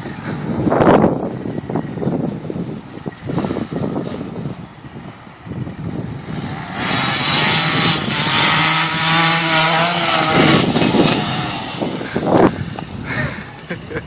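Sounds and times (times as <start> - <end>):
dirt bike engine revving: 3.1 - 14.0.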